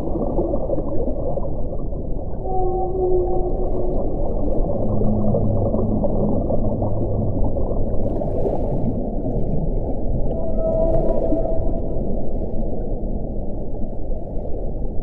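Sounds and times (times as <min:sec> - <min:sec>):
wind moaning tones: 0:00.0 - 0:15.0.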